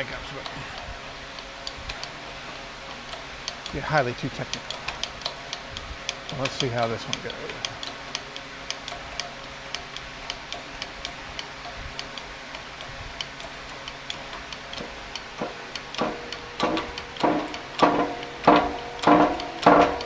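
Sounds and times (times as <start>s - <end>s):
hydraulic press pump creaking: 0.0s - 20.0s
light ticking: 0.0s - 20.0s.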